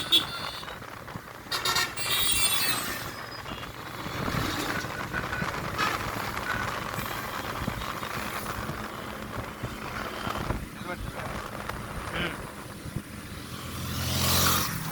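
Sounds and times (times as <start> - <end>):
faint car horns: 0.0 - 0.8
traffic rumble: 0.0 - 14.9.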